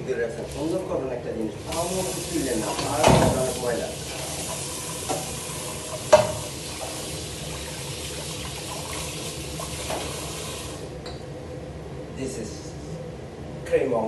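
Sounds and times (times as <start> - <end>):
water running from a tap: 1.6 - 10.8.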